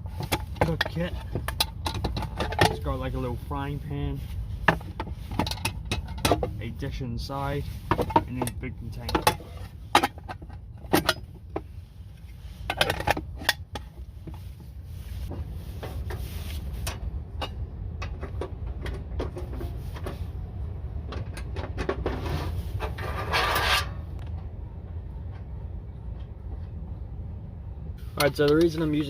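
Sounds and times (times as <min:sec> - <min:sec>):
low rumble: 0:24.0 - 0:28.2.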